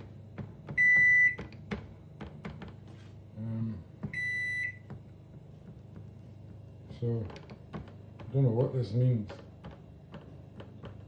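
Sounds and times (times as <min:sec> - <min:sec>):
microwave beeping: 0:00.0 - 0:01.8, 0:04.0 - 0:05.0.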